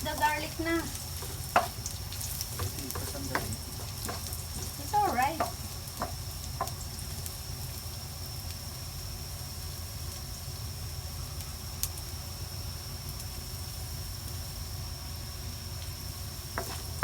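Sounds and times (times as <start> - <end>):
low steady hum: 0.0 - 8.1
garlic sizzling in oil: 0.0 - 17.0.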